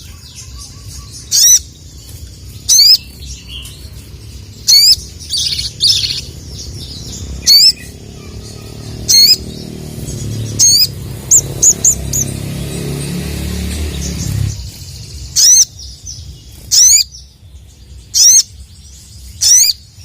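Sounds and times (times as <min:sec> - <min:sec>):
bird chatter: 0:00.0 - 0:20.0
bird calling high sharp notes: 0:07.4 - 0:15.8.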